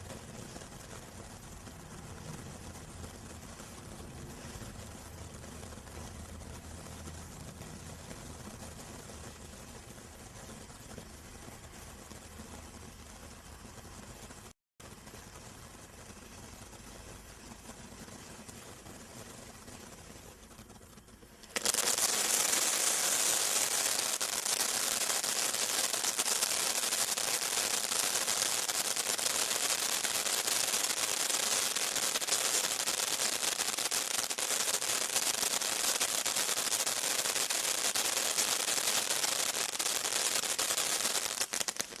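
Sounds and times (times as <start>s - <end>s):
rapid crackling pops: 0.0s - 42.0s
fountain firework spraying hiss: 21.4s - 42.0s.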